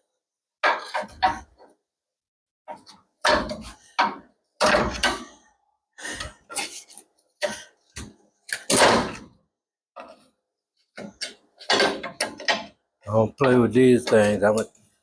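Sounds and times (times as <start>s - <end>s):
heavy metal clunks and knocks: 0.6s - 1.6s, 2.7s - 5.4s, 11.0s - 12.8s.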